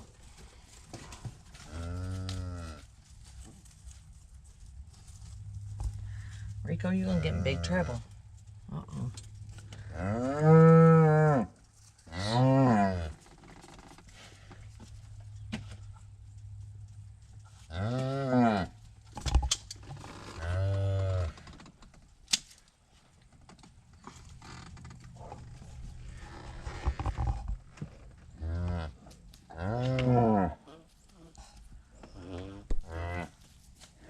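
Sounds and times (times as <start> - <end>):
cattle mooing: 9.8 - 11.5, 12.1 - 13.2, 20.4 - 21.4
sharp clicks and knocks: 19.1 - 20.0.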